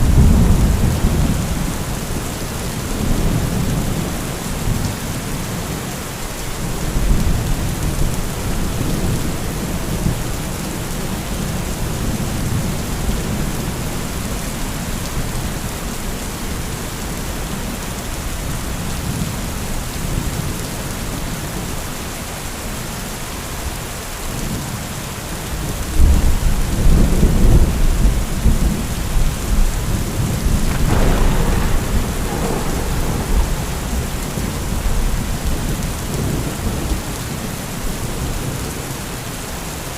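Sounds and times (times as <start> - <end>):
rolling thunder: 0.0 - 4.9, 26.0 - 37.5
heavy rain: 0.0 - 39.9
sharp thunder crack: 30.4 - 36.8.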